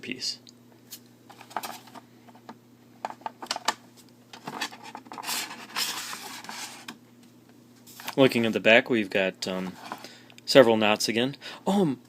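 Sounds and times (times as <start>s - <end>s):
cardboard scraping and rubbing: 4.4s - 6.9s.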